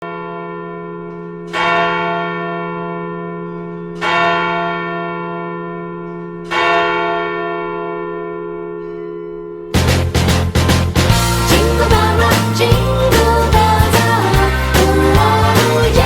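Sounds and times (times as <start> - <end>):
large bell tolling: 0.0 - 16.0.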